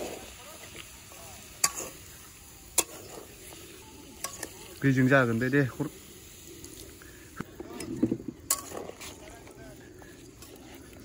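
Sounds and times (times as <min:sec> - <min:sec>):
curry sizzling in a wok: 0:00.0 - 0:11.0
metal spatula stirring: 0:01.4 - 0:05.3, 0:07.6 - 0:11.0.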